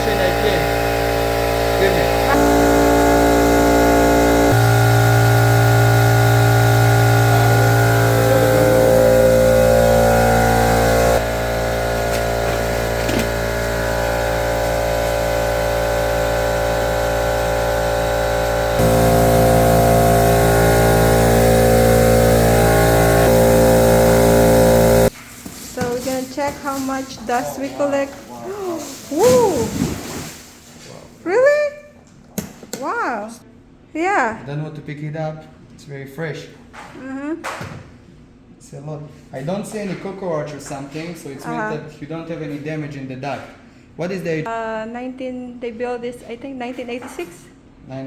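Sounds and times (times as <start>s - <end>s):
vacuum cleaner motor running: 0.0s - 30.2s.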